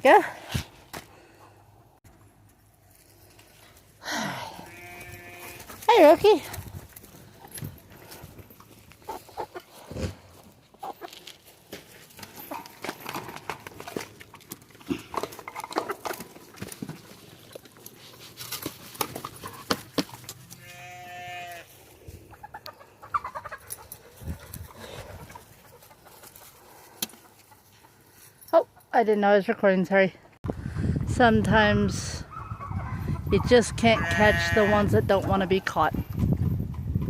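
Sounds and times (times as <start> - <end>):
sheep bleating: 4.6 - 5.7, 20.5 - 21.8, 34.0 - 34.9
rustling: 4.7 - 22.3.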